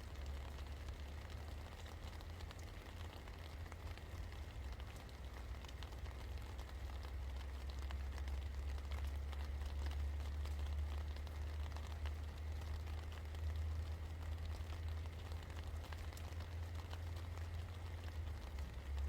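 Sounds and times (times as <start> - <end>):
constant low hum: 0.0 - 19.0
steady rain falling: 0.0 - 19.0.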